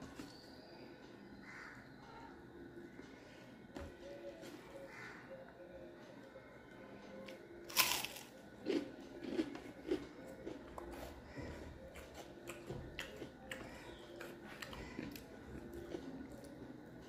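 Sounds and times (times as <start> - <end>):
quiet chewing: 7.0 - 17.0
crunchy bite and chewing: 7.3 - 16.6.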